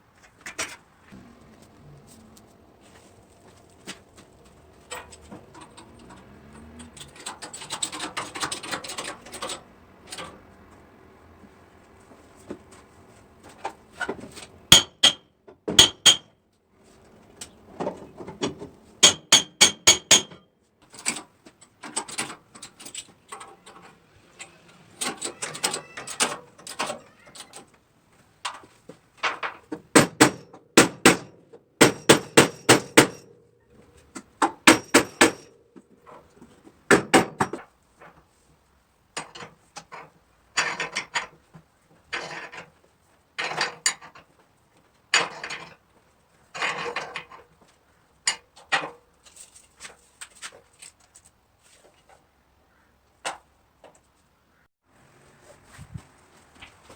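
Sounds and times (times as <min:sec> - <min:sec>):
hammer striking sheet metal: 0:15.8 - 0:16.2.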